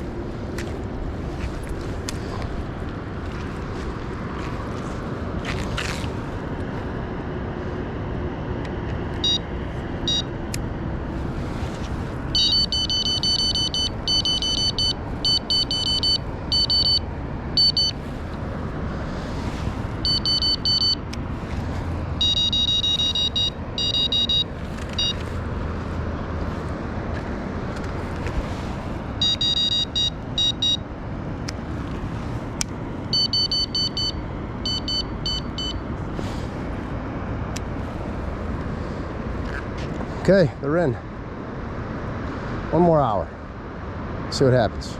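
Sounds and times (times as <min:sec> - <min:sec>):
electronic bite alarms beeping: 0:09.2 - 0:09.4, 0:10.1 - 0:10.3, 0:12.3 - 0:17.0, 0:17.6 - 0:18.0, 0:20.0 - 0:21.0, 0:22.2 - 0:25.2, 0:29.2 - 0:30.8, 0:33.1 - 0:35.9.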